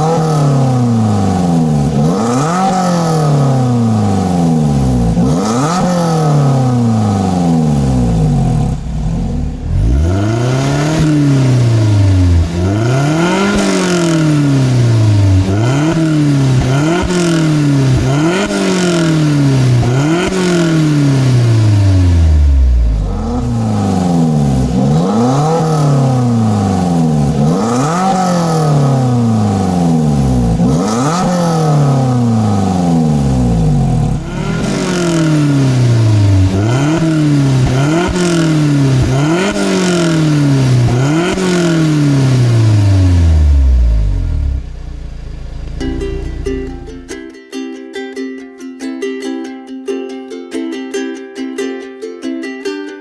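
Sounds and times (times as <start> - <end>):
car engine revving: 0.0 - 47.2.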